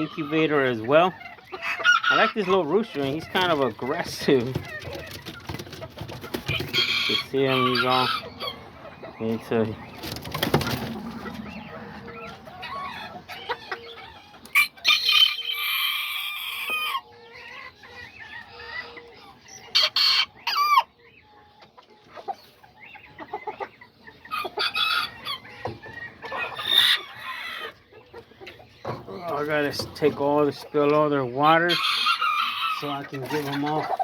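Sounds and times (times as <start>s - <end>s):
hens clucking: 0.0s - 34.0s
rooster crowing: 6.7s - 8.7s.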